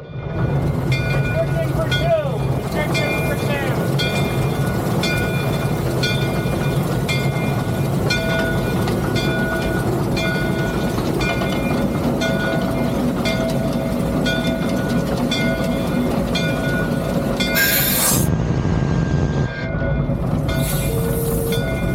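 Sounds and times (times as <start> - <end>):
steam locomotive rumble: 0.0 - 21.9
loud steam hiss: 0.5 - 13.2, 15.9 - 18.8, 20.2 - 21.9.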